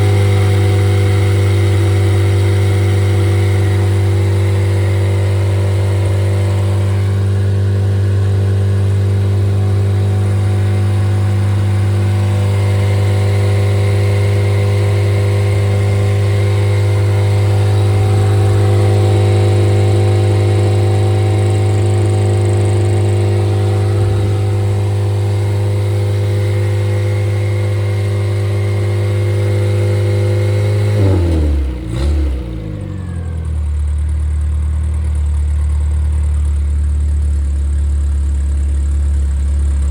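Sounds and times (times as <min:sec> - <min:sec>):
car engine revving then idling: 0:00.0 - 0:39.9.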